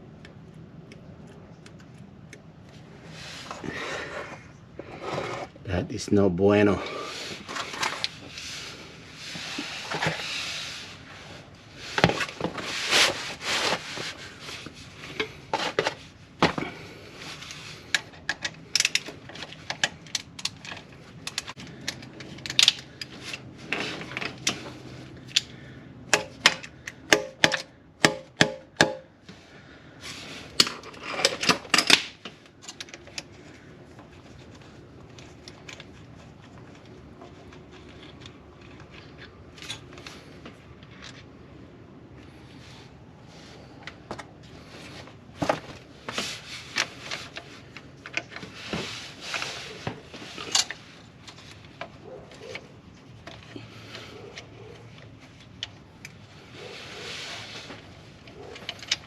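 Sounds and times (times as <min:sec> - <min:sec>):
metal tools clicking and scraping: 0:17.9 - 0:25.5, 0:50.3 - 0:56.2, 0:58.2 - 0:59.0.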